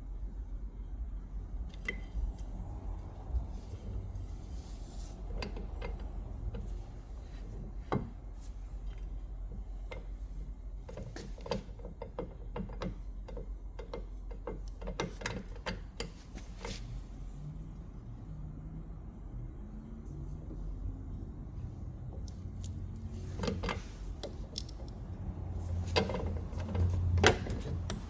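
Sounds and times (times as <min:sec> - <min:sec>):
metal parts clicking and knocking: 0:22.2 - 0:25.0.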